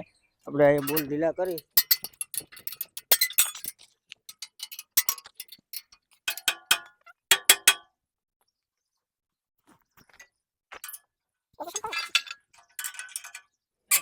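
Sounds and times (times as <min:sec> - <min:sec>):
spanner clinking on metal bolts: 0:00.7 - 0:07.9, 0:11.7 - 0:14.0.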